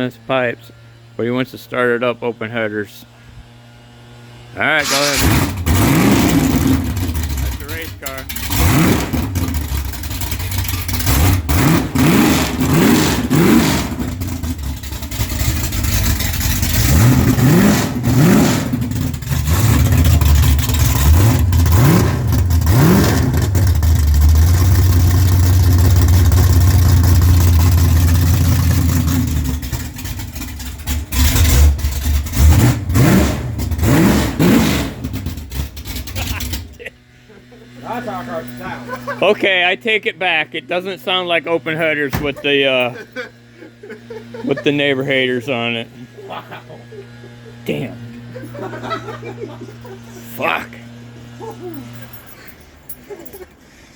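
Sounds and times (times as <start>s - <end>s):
car engine revving: 4.6s - 36.8s.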